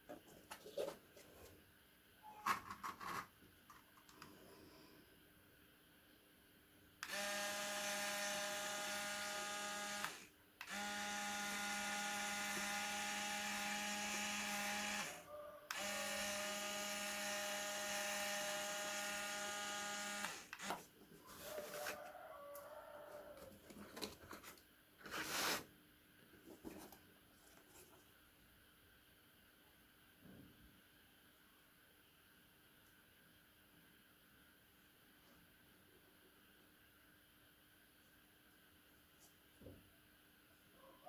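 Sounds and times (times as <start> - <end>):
handling rustles: 0.0 - 1.6, 26.3 - 28.2
small electric motor whining: 7.0 - 20.8.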